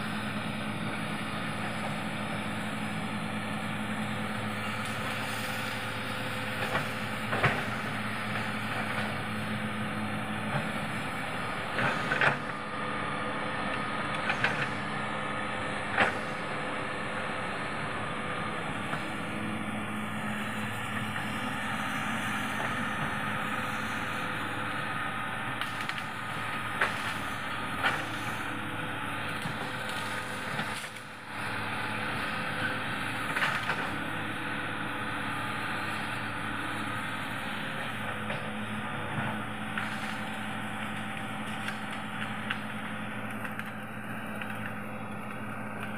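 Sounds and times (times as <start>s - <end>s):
excavator diesel engine running: 0.0s - 45.9s
wood snapping: 43.3s - 45.9s.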